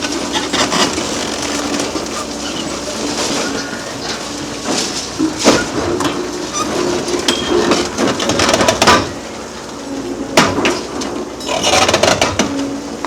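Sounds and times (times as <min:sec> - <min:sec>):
concrete cracking and clattering: 0:00.0 - 0:09.2
excavator diesel engine running: 0:00.0 - 0:13.0.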